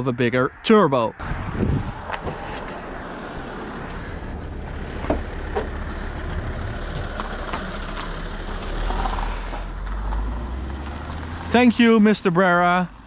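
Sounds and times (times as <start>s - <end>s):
car engine running: 1.7s - 10.1s.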